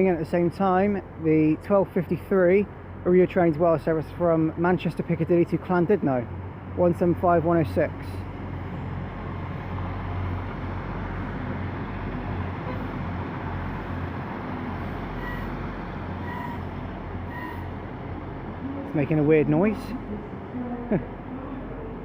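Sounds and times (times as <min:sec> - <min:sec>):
diesel train engines rumbling: 0:00.0 - 0:22.0.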